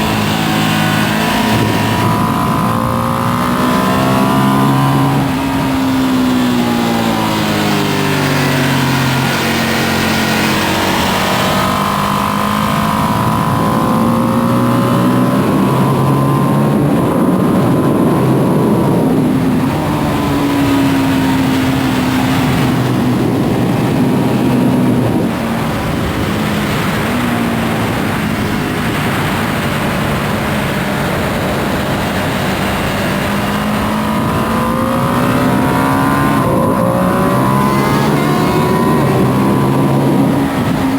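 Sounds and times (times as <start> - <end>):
motorcycle engine revving: 0.0 - 40.9
wind rush: 0.0 - 40.9.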